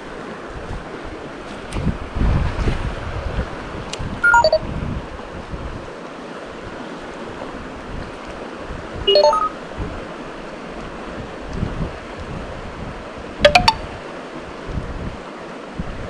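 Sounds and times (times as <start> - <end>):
stepped beeping tones: 4.2 - 4.6, 9.1 - 9.6, 13.4 - 13.8.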